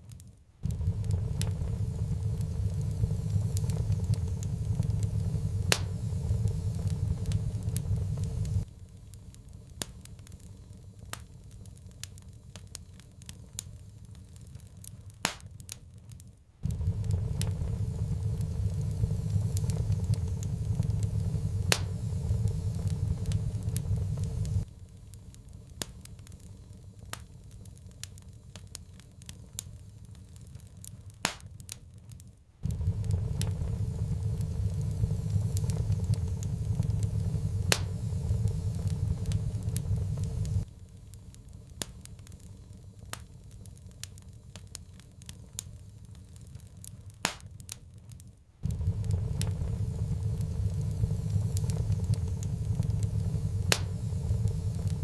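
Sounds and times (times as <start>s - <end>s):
wood fire crackling and popping: 0.0s - 55.0s
low rumble: 0.6s - 9.1s, 16.6s - 24.8s, 32.6s - 40.8s, 48.6s - 55.0s.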